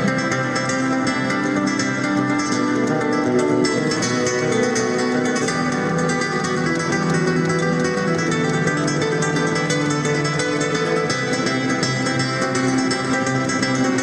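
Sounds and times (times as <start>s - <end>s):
flamenco acoustic guitar: 0.0s - 14.0s.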